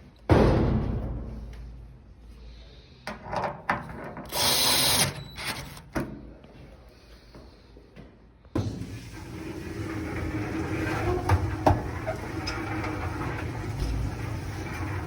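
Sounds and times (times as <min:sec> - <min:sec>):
cordless drill driving a screw: 0:04.3 - 0:05.8
knocks and clatter on dryer drum: 0:09.7 - 0:15.0.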